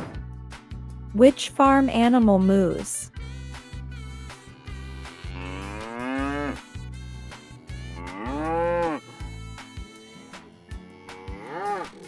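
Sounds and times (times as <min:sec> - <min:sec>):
background music with bass line: 0:00.0 - 0:12.0
cow mooing: 0:04.4 - 0:06.8, 0:07.7 - 0:09.4, 0:10.7 - 0:12.0.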